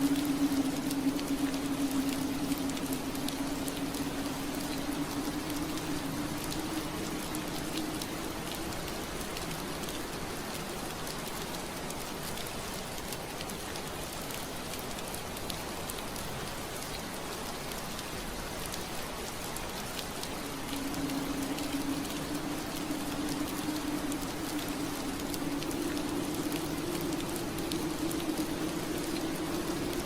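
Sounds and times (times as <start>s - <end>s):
low steady hum: 0.0s - 11.5s, 20.0s - 30.0s
rain pattering on window glass: 0.0s - 30.0s.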